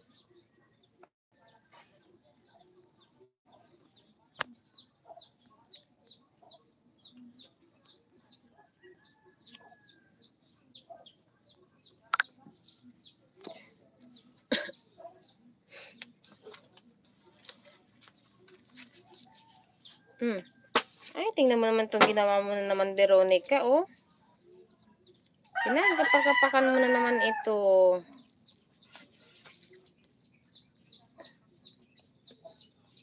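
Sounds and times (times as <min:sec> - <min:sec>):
bird chirping: 0:26.9 - 0:33.0.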